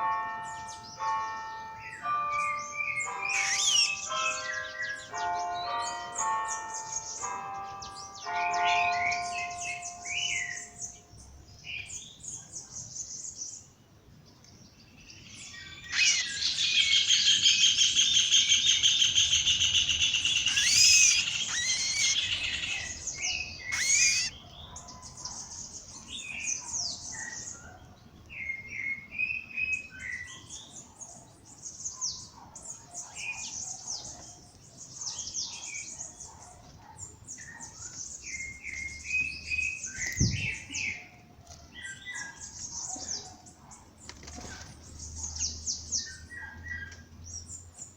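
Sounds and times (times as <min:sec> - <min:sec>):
birds singing: 0:00.0 - 0:47.9
bird chirps and whistles: 0:03.4 - 0:04.0, 0:15.5 - 0:24.3
bird loud rapid trill: 0:03.4 - 0:04.0, 0:15.6 - 0:24.3.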